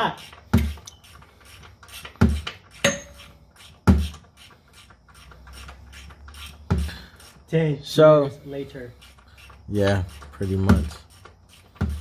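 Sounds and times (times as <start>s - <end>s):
tools clicking and rattling: 0.0s - 7.5s.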